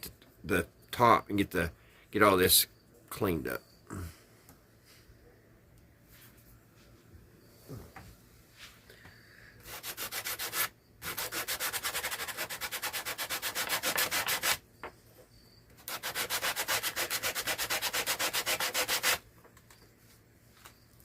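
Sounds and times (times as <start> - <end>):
sandpaper scraping back and forth: 9.6 - 14.6, 15.8 - 19.2.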